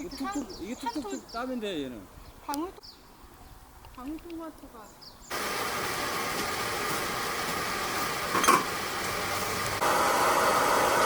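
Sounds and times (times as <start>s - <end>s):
fan-like running noise: 5.3s - 11.0s.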